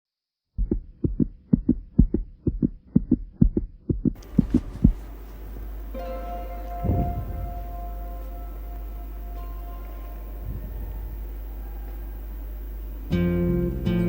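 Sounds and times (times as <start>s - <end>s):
heartbeat thumps: 0.6s - 14.0s
held synth tone: 4.2s - 13.8s
synth drone: 4.2s - 14.0s.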